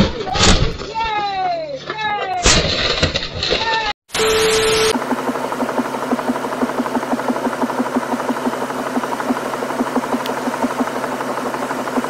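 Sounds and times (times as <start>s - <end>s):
fast regular throbbing: 5.0s - 12.0s.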